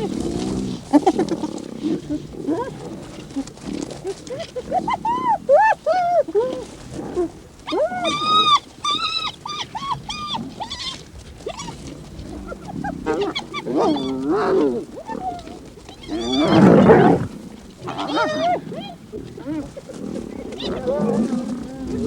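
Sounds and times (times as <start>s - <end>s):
hyenas giggling and squealing: 3.4s - 6.7s, 12.4s - 22.0s.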